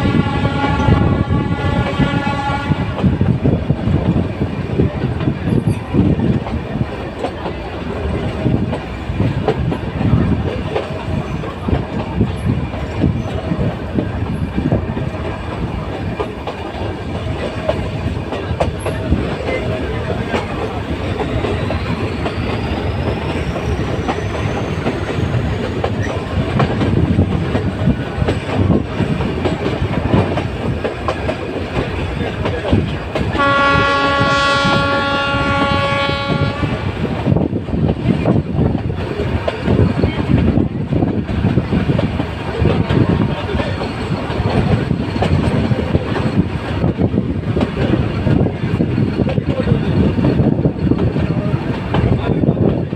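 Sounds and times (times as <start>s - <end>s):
train horn: 0.0s - 3.3s, 33.3s - 37.0s
train wheels clattering: 0.0s - 52.9s.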